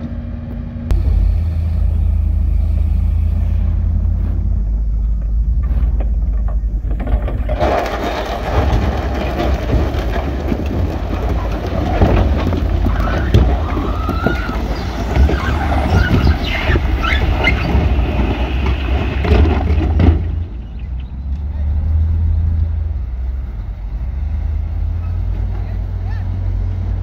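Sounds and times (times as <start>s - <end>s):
diesel engine low rumble: 0.0s - 27.0s
machinery clanks and knocks: 0.9s - 22.6s
high squeals: 11.3s - 19.7s.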